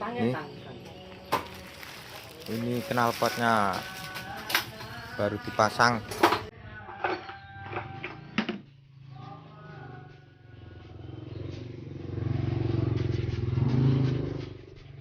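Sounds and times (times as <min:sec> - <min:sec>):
motorcycle engine running: 0:09.9 - 0:15.0.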